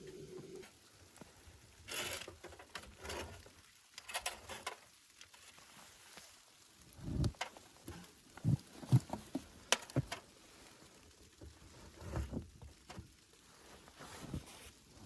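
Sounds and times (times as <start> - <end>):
soft thumps and knocks: 7.0 - 10.2.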